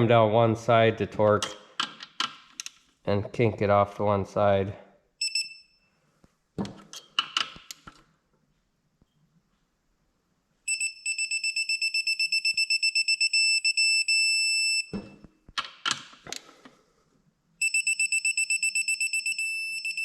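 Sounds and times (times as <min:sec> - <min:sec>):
high-pitched torque wrench beeping: 0:10.7 - 0:14.9, 0:17.6 - 0:20.0.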